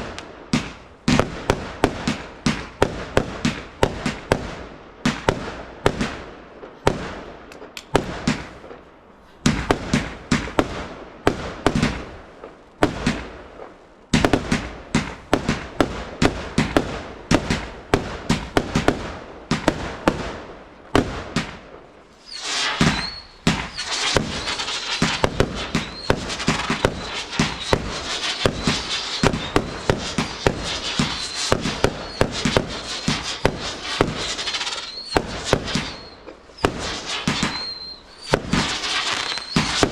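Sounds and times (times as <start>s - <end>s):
fireworks bangs: 0.0s - 39.9s
fireworks crackling: 0.0s - 39.9s
high whistle: 22.2s - 39.9s.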